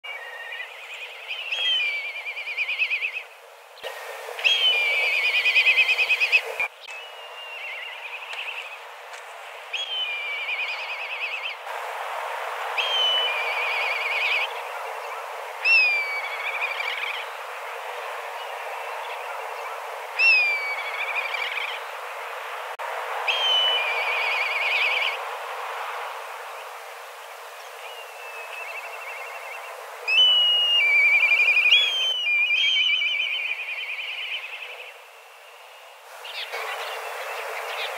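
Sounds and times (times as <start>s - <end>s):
kites whistling calls: 0.1s - 8.8s, 12.6s - 22.2s, 23.2s - 25.3s, 26.1s - 34.9s, 36.1s - 37.9s
steady background hiss: 0.1s - 37.9s.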